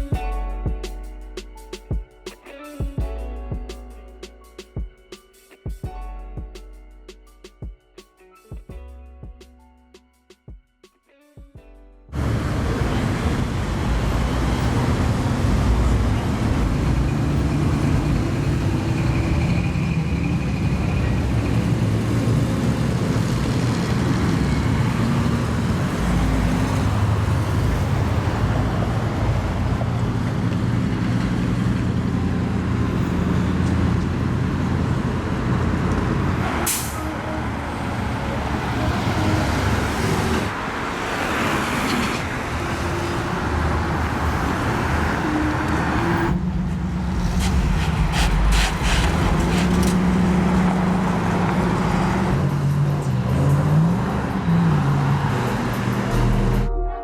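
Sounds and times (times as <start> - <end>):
brief hisses: 47.1 - 50.0.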